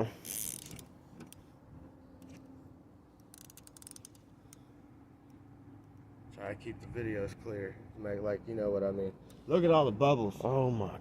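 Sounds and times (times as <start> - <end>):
fishing reel clicker: 0.2 - 0.8, 3.2 - 4.2.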